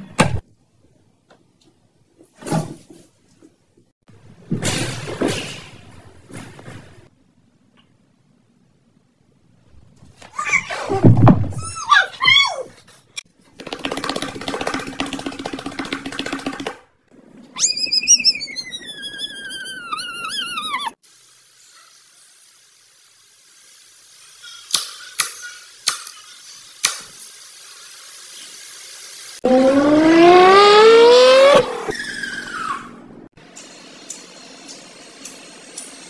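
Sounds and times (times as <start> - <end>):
long high wavering cry: 17.6 - 21.0
faint hiss: 21.0 - 29.4
car engine revving: 29.4 - 31.9.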